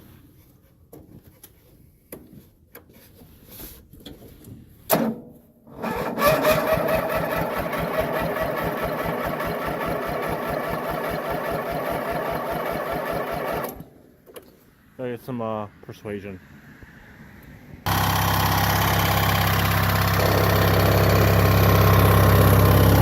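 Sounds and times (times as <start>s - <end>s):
lawn tractor engine cranking: 5.7s - 13.9s, 17.9s - 23.0s.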